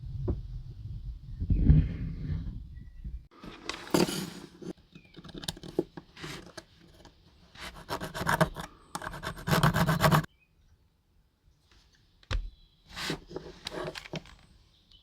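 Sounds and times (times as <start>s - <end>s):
scraping and scratching strokes: 6.2s - 10.3s, 12.9s - 14.3s.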